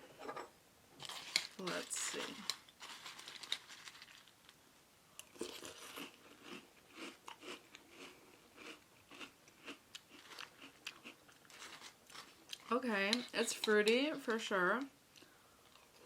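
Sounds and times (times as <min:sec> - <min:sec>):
person chewing crunchy cereal: 0:01.0 - 0:04.3, 0:05.2 - 0:12.7.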